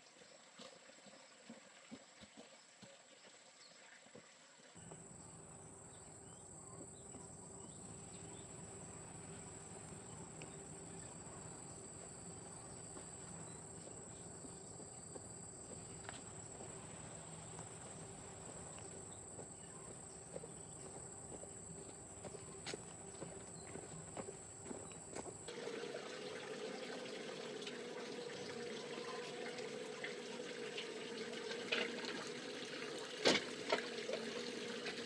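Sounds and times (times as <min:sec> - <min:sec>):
insects droning: 0:04.8 - 0:35.0.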